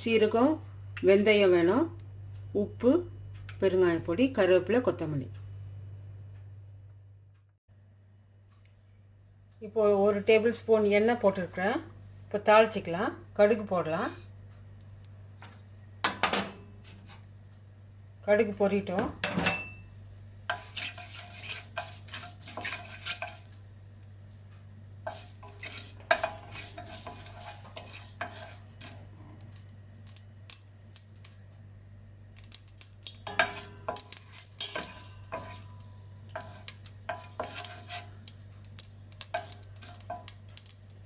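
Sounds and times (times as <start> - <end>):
low steady hum: 0.0 - 41.0
seeds popping in hot oil: 20.4 - 41.0.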